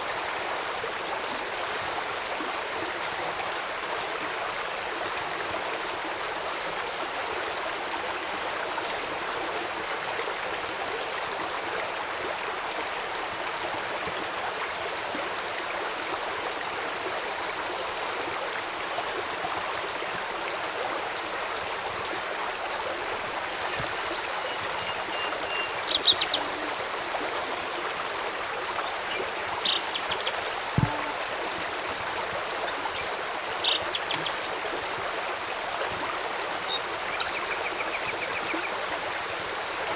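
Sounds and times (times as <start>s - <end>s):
river water rushing: 17.3s - 39.9s
wildlife calls: 23.1s - 34.9s.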